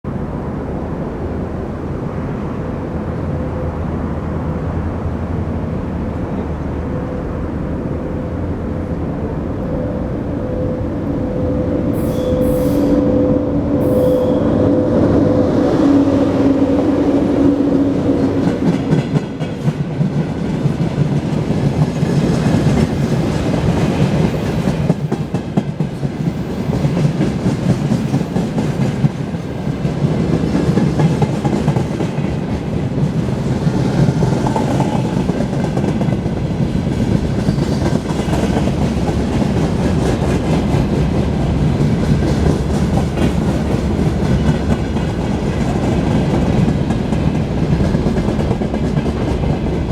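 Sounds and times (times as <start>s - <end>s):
hum: 6.0s - 18.4s
train wheels clattering over rails: 16.0s - 49.9s.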